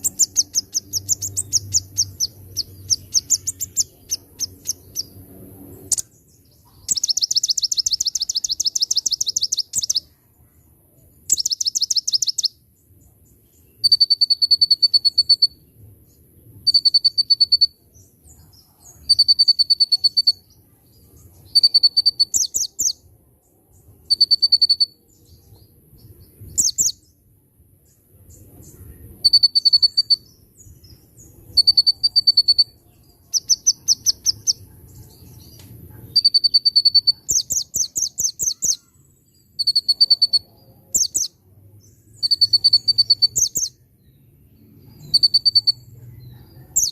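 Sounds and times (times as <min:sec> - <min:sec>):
songbird trilling: 0:00.0 - 0:10.1, 0:11.3 - 0:12.6, 0:18.8 - 0:20.5, 0:21.4 - 0:23.0, 0:26.4 - 0:27.0, 0:28.6 - 0:41.4, 0:42.1 - 0:43.8, 0:45.0 - 0:45.8, 0:46.7 - 0:46.9.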